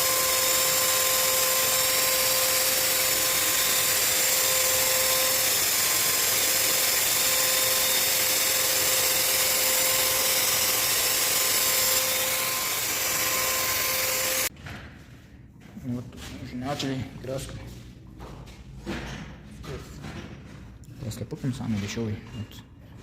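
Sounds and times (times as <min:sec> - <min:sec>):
electric paint sprayer whining: 0:00.0 - 0:14.5.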